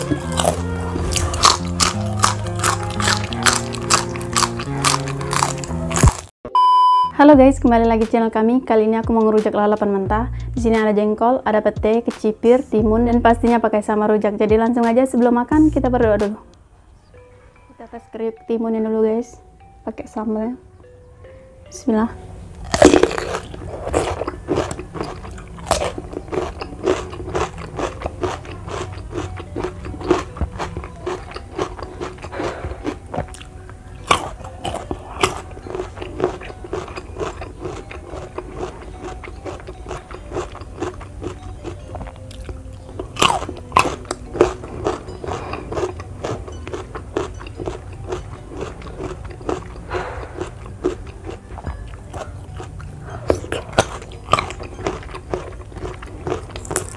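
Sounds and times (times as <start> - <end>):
crunchy bites into vegetables: 0.0 - 6.3, 22.6 - 56.9
wet chewing: 0.0 - 6.3, 22.6 - 56.9.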